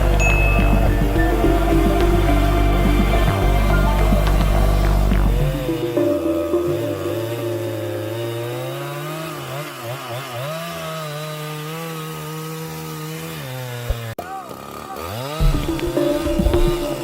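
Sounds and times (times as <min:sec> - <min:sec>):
chainsaw cutting wood: 0:07.3 - 0:17.0.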